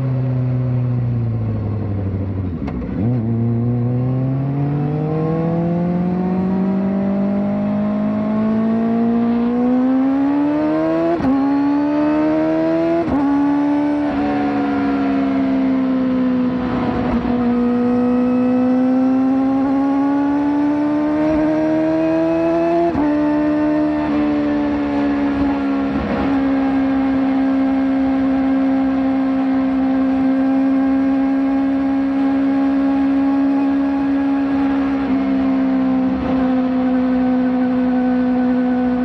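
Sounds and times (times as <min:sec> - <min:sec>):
motorcycle engine revving: 0:00.2 - 0:39.0.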